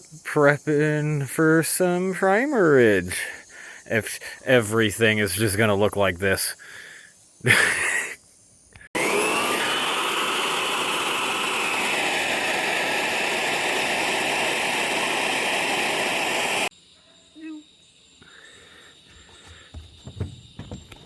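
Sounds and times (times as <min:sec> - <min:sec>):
power sander sanding steel: 0:09.0 - 0:16.7.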